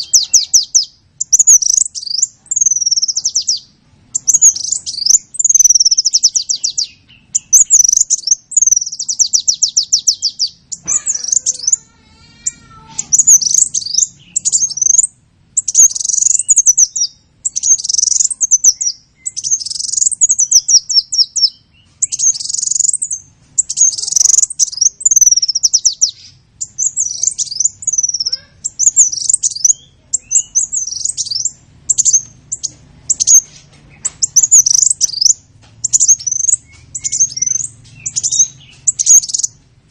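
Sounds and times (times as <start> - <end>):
small bird chirping and trilling: 0.0 - 39.9.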